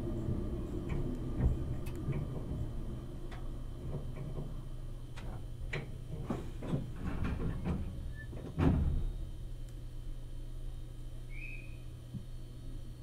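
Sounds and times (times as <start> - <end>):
train clicks and knocks: 0.0 - 9.4
train interior rumble: 0.0 - 13.0.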